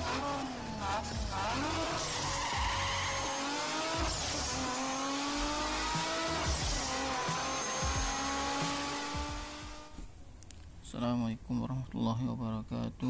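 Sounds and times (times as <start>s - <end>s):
sports car engine accelerating: 0.0s - 10.0s
intro music with booming hits: 5.8s - 9.5s.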